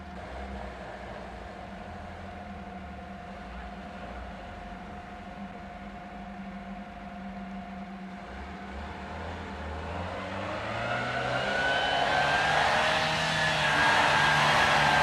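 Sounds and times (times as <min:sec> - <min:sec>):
off-road vehicle engine revving: 0:08.2 - 0:15.0.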